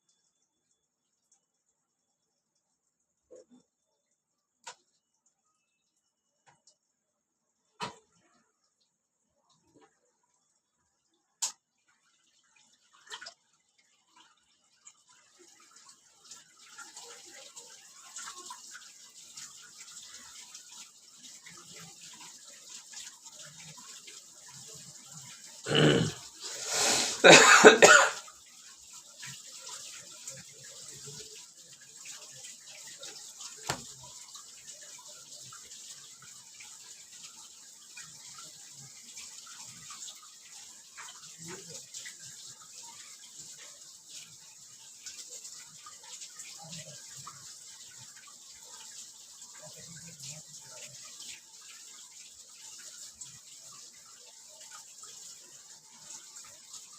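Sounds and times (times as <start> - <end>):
running water hiss: 11.1 - 56.9
person coughing: 25.7 - 26.2, 26.9 - 28.2.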